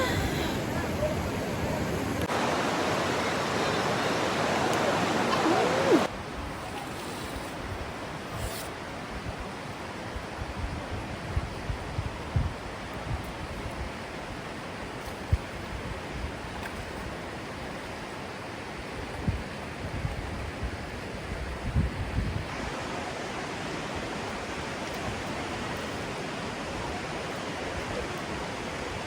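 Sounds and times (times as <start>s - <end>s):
river water rushing: 0.0s - 6.2s, 22.5s - 29.0s.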